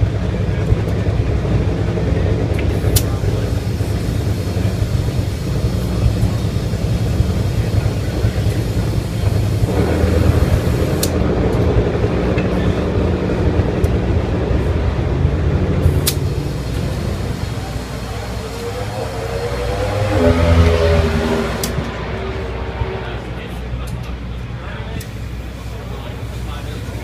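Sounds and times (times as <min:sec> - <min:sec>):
machine drone: 0:00.0 - 0:27.0
sharp clicks: 0:15.9 - 0:16.8.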